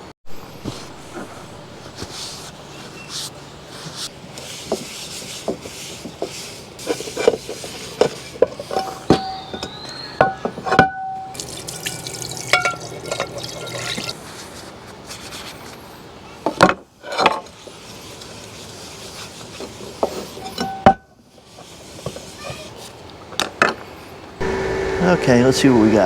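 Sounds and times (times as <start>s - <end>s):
dishes clinking and knocking: 8.0s - 11.2s, 12.0s - 14.1s
water pouring and splashing: 11.4s - 14.2s.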